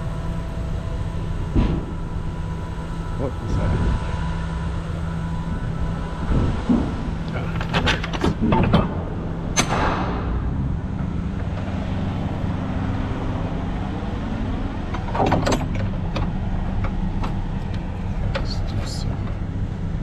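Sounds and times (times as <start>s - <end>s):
diesel truck engine idling: 0.0s - 20.0s
clanks and knocks: 6.3s - 11.9s, 14.9s - 18.5s.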